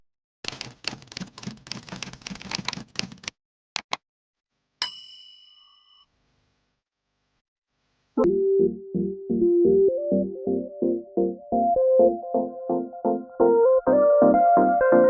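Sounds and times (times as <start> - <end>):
bell-like ding: 4.8 - 6.1.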